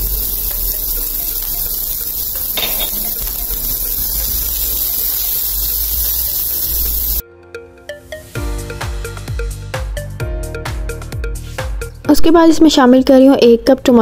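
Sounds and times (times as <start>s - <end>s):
onion and garlic sizzling in oil: 0.0s - 7.2s.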